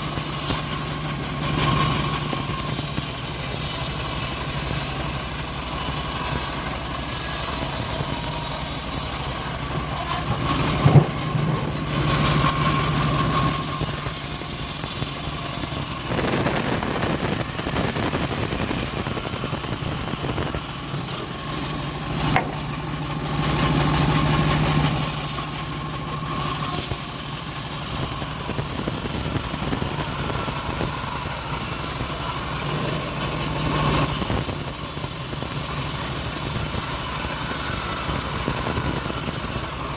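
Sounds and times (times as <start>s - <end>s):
bandsaw mill sawing wood: 0.0s - 39.9s
sharp knock: 22.3s - 22.7s.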